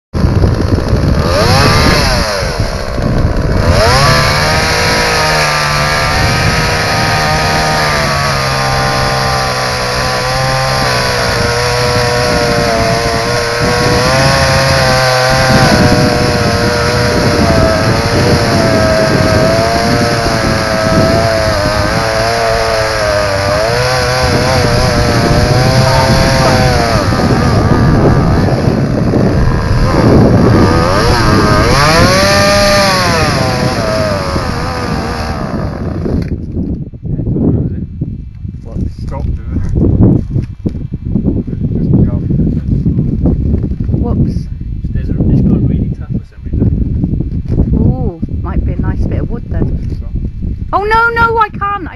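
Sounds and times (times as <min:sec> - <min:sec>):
chainsaw engine at high revs: 0:00.2 - 0:36.4.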